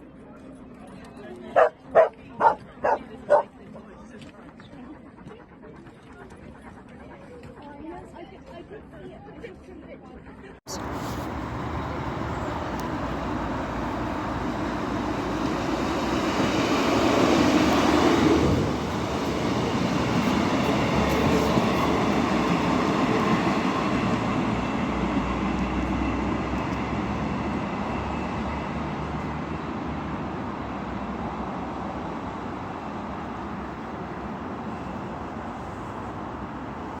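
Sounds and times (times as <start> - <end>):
train passing: 1.6 - 3.4, 10.7 - 37.0.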